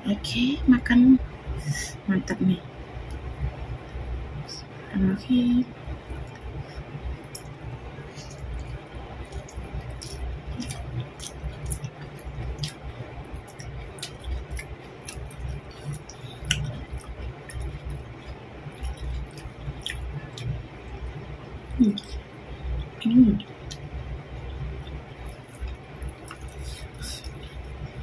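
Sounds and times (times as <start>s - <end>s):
person chewing with mouth smacks: 6.2s - 20.6s, 21.7s - 27.8s.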